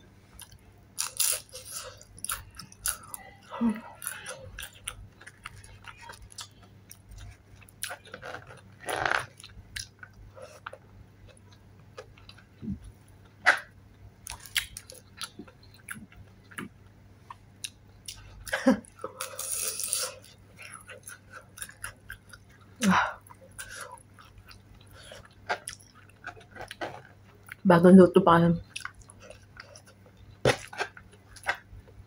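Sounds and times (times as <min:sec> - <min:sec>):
chewing and biting food: 0:00.4 - 0:12.6, 0:17.3 - 0:22.6, 0:23.2 - 0:27.6, 0:28.6 - 0:32.0.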